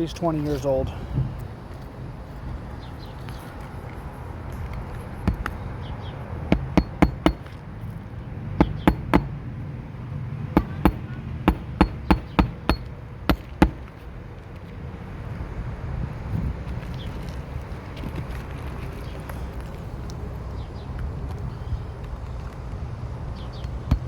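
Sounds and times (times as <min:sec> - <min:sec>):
hammer striking nails: 0:05.3 - 0:05.5, 0:06.5 - 0:07.6, 0:08.6 - 0:09.4, 0:10.6 - 0:13.9, 0:23.8 - 0:24.0.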